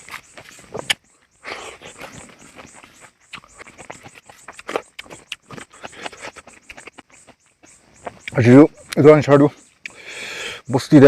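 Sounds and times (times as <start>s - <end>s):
wet mouth smacks and chewing: 2.1s - 7.4s.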